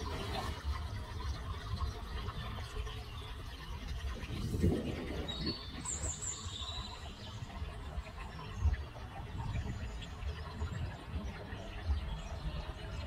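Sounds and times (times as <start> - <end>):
small birds chirping: 5.0 - 13.0.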